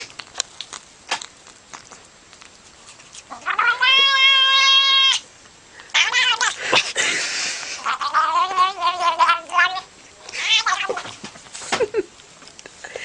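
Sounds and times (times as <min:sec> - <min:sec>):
cat meowing: 0:03.3 - 0:05.2, 0:05.9 - 0:06.6, 0:07.8 - 0:11.1.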